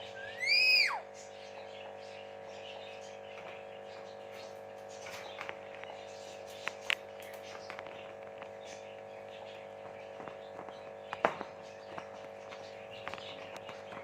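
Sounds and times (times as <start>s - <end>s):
parrot chirping: 0.0s - 4.1s
steady background hum: 0.0s - 14.0s.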